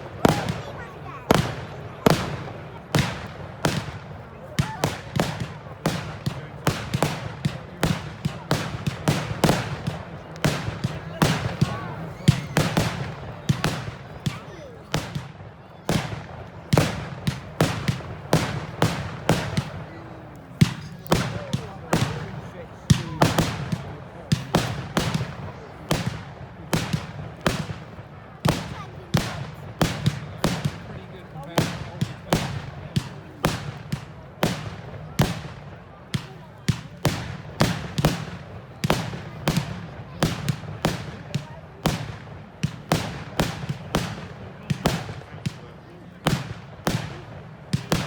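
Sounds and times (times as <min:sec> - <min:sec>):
fireworks banging: 0:00.0 - 0:48.0.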